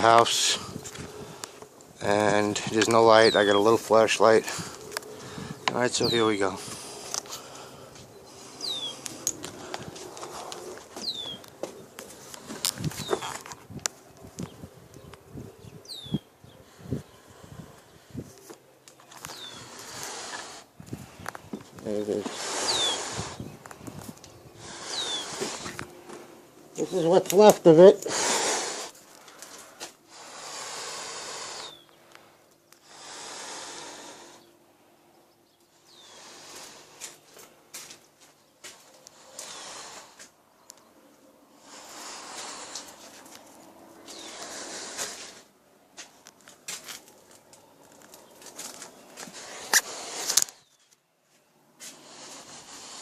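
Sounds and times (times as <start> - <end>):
breathing through gas mask: 4.4 - 5.7, 6.4 - 13.5, 16.5 - 18.3, 19.3 - 25.9, 28.0 - 34.5, 35.8 - 37.2, 39.1 - 40.4, 41.5 - 45.6, 48.6 - 50.7, 51.8 - 53.0
clicks and crackles: 46.0 - 51.0.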